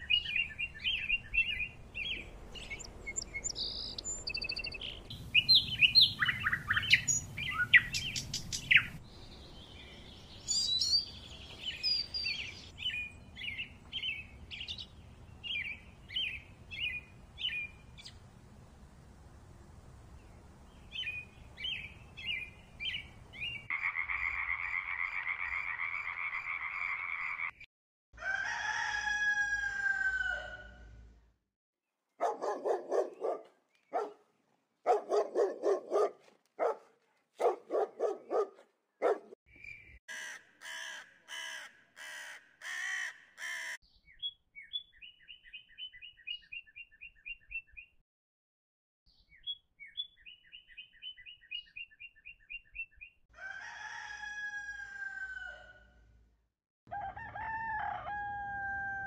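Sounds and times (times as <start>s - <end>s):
loud repeated bird calls: 20.9s - 27.7s, 37.4s - 47.6s
rooster crowing: 28.2s - 30.9s, 53.3s - 56.0s, 56.9s - 59.0s.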